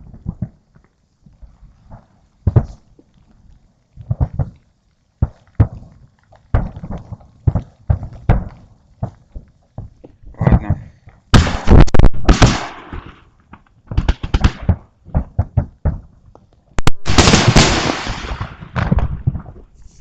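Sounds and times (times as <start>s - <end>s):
firework bangs: 6.5s - 9.2s, 9.8s - 16.1s, 16.8s - 19.7s
crackling hissing firework bursts: 11.4s - 15.6s, 17.0s - 20.0s.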